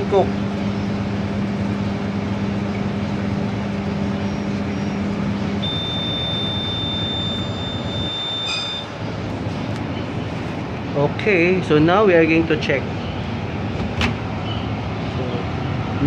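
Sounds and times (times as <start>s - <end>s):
microwave oven humming: 0.0s - 16.0s
long high beep: 4.2s - 9.1s.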